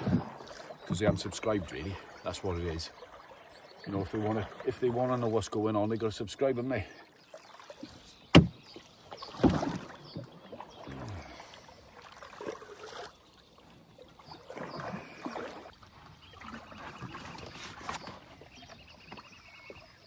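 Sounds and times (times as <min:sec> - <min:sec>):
paddle strokes swishing water: 0:00.0 - 0:20.0
sharp knock: 0:08.3 - 0:08.6
dull thump: 0:08.3 - 0:08.7.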